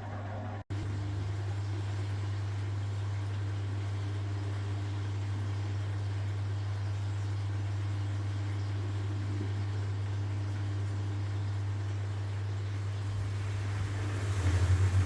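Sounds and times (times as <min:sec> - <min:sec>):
washing machine humming: 0:00.0 - 0:15.0.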